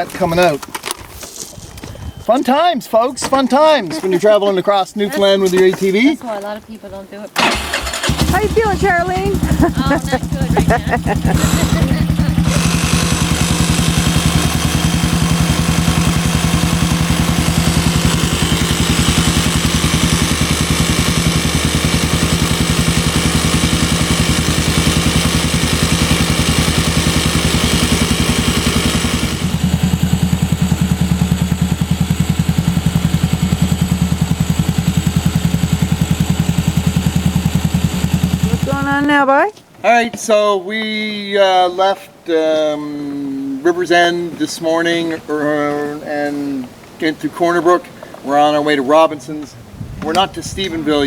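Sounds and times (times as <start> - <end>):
motor running with rapid pulse: 7.8 - 39.0.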